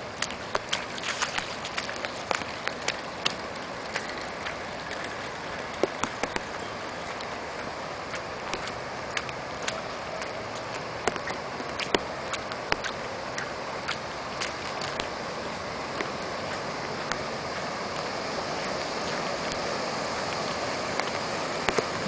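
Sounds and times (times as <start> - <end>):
drops ticking close by: 0.0 - 22.0
heavy rain: 0.0 - 22.0
running floodwater: 0.0 - 22.0.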